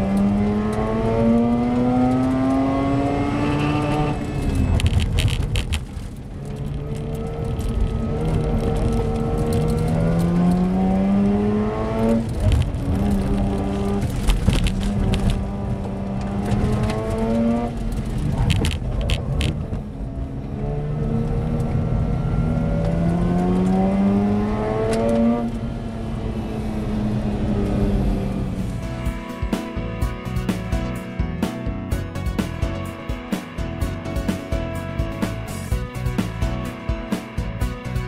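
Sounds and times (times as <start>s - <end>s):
rotary engine revving hard: 0.0s - 4.7s, 7.0s - 14.2s, 20.6s - 28.6s.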